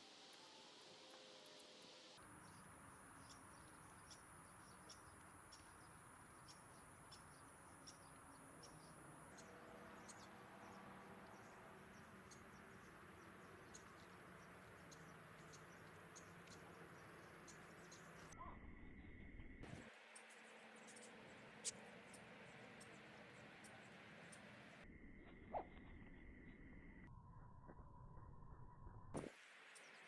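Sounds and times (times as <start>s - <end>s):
low hiss: 29.2s - 30.0s.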